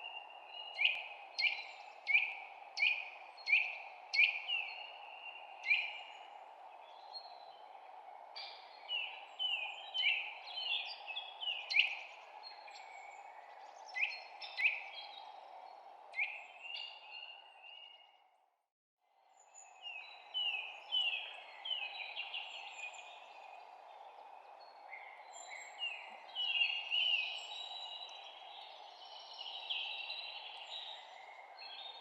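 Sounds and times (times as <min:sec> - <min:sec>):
songbirds chirping: 0:00.0 - 0:18.4, 0:19.2 - 0:32.0.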